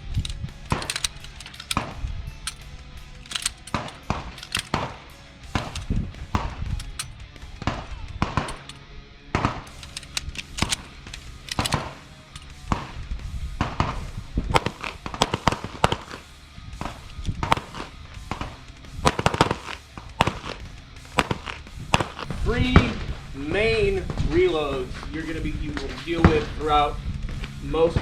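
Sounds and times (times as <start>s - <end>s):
pistol shots: 0.0s - 8.8s, 9.4s - 13.0s, 13.6s - 23.1s
background music: 0.0s - 28.0s.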